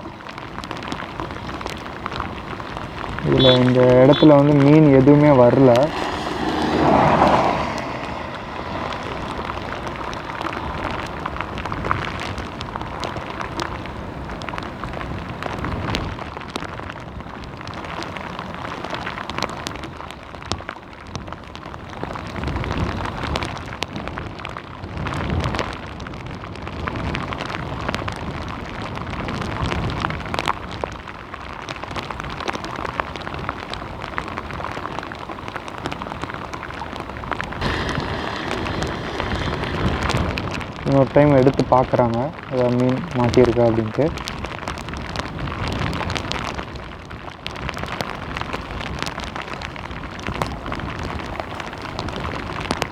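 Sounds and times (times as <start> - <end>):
heavy rain falling: 0.0 - 16.6, 28.0 - 52.9.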